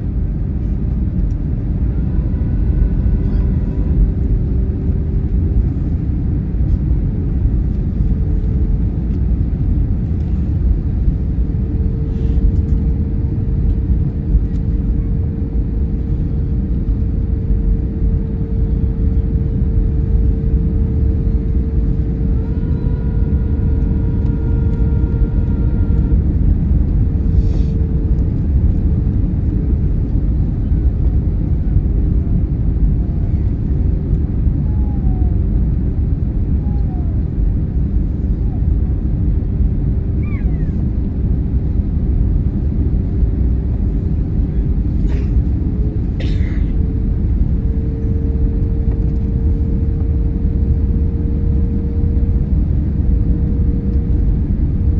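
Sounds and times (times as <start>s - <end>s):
airliner rumble: 0.0s - 54.9s
engine tone: 1.2s - 5.9s, 10.0s - 31.2s, 43.8s - 54.2s.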